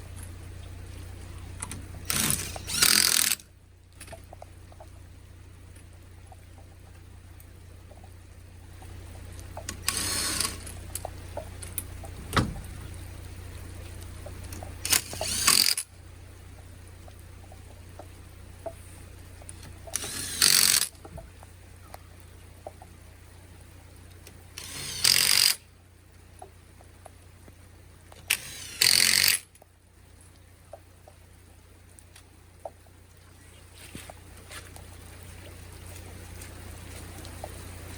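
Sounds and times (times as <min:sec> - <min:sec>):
low hum: 0:00.0 - 0:37.9
impact wrench bursts: 0:02.1 - 0:03.4, 0:09.8 - 0:10.7, 0:14.8 - 0:15.9, 0:20.0 - 0:20.9, 0:24.6 - 0:25.6, 0:28.3 - 0:29.5.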